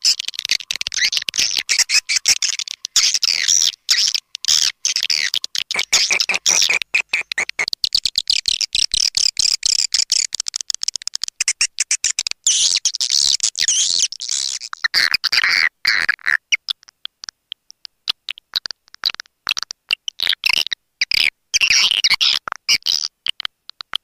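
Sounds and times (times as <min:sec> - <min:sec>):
swiftlets twittering chirps: 0:00.0 - 0:08.0.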